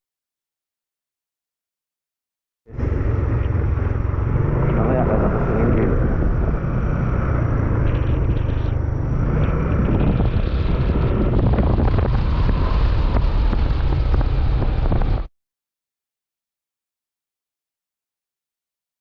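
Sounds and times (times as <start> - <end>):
scooter engine running: 2.7 - 15.3
wind buffeting microphone: 2.8 - 15.3.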